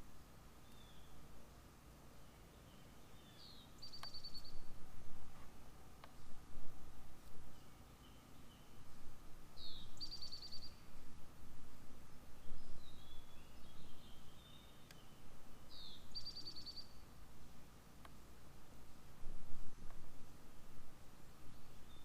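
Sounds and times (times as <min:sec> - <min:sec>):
low background rumble: 0:00.0 - 0:22.0
faint bird chirps: 0:00.6 - 0:01.3, 0:02.1 - 0:04.8, 0:07.4 - 0:08.9, 0:09.6 - 0:11.0, 0:12.3 - 0:17.1, 0:21.4 - 0:22.0
songbird singing with trill: 0:00.6 - 0:01.3, 0:02.2 - 0:04.8, 0:07.4 - 0:08.9, 0:09.5 - 0:11.0, 0:12.3 - 0:17.2, 0:21.4 - 0:22.0.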